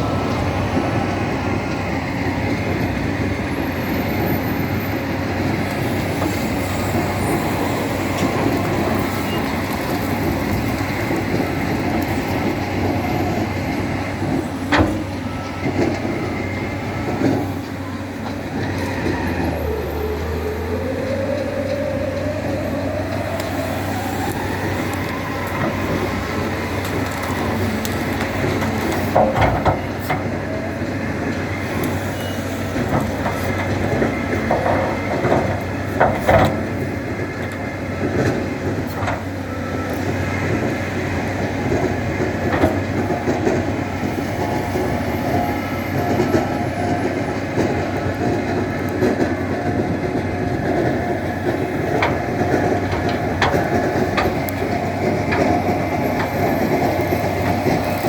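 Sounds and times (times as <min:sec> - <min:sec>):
tractor engine running: 0:00.0 - 0:58.0
rising whine: 0:18.8 - 0:29.3.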